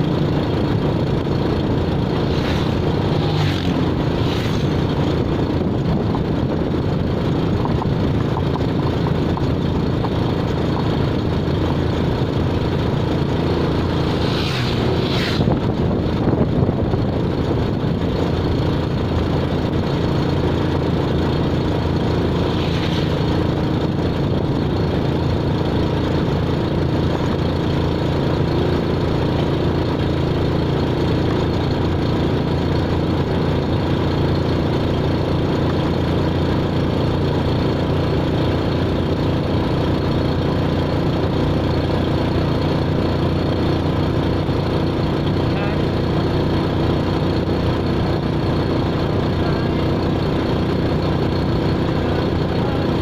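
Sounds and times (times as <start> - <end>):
vehicle engine running: 0.0 - 53.0.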